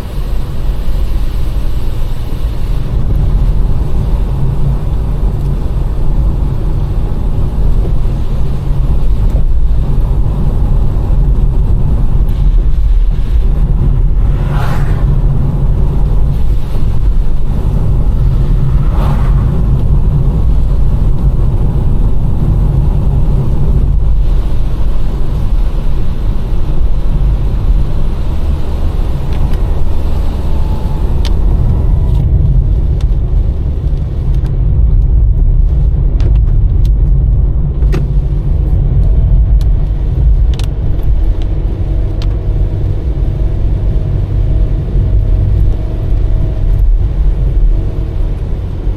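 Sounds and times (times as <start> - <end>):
car engine and tyres on wet road: 0.0 - 48.9.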